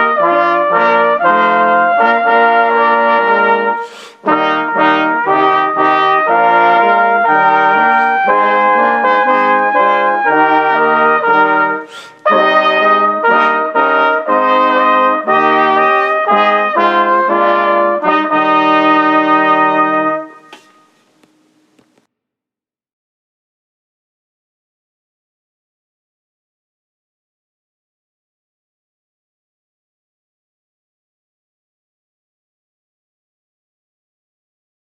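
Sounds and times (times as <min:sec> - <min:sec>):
brass instruments playing chords: 0:00.0 - 0:21.7.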